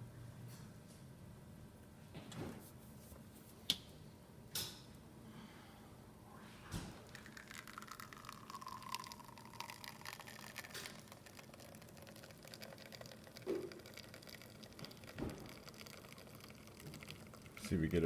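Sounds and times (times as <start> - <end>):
espresso dripping into cup: 7.0 - 18.0.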